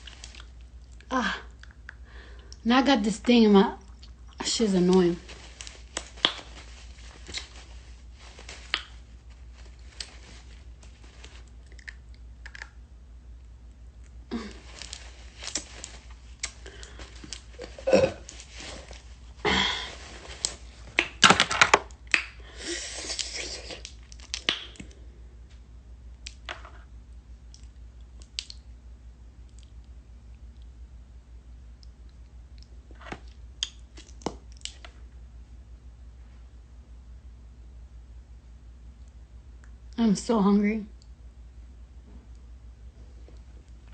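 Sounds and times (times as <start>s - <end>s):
mouth clicks and smacks: 0.2s - 2.0s, 11.6s - 12.8s, 23.1s - 25.0s, 27.5s - 28.7s, 31.8s - 35.0s
person eating a mango: 11.4s - 12.8s.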